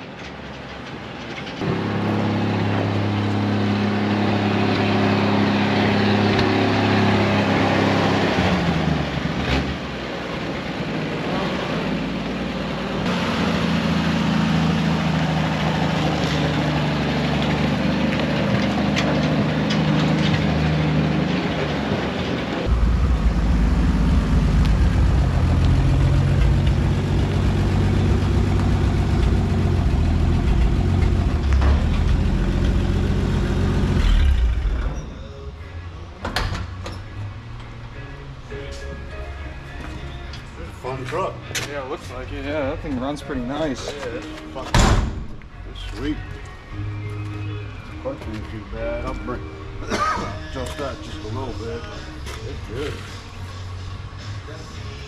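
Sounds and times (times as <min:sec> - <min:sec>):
truck engine running: 0:00.0 - 0:41.4.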